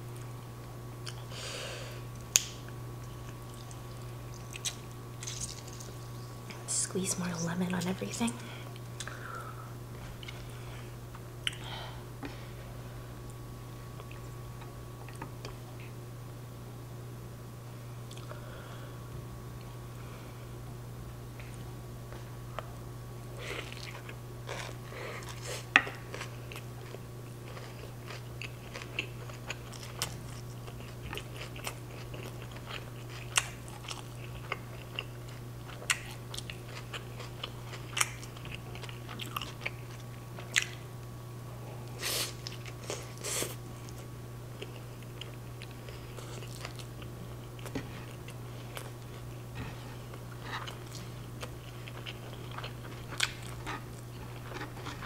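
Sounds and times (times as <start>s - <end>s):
steady low hum: 0.0s - 55.0s
chewing crunches: 2.2s - 6.6s, 23.4s - 40.9s, 41.9s - 55.0s.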